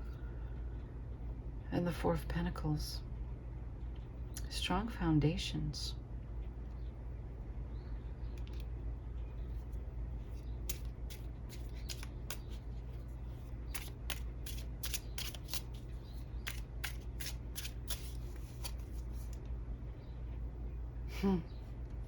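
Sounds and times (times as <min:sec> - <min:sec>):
steady low hum: 0:00.0 - 0:22.0
cards snapping and flicking: 0:10.6 - 0:12.7, 0:13.7 - 0:19.4.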